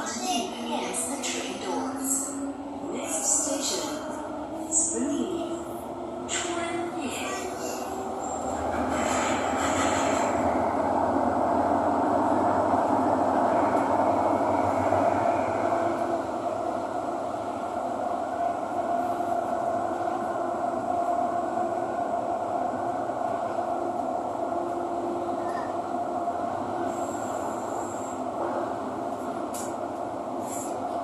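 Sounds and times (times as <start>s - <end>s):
metro train rumble and hum: 0.0s - 31.0s.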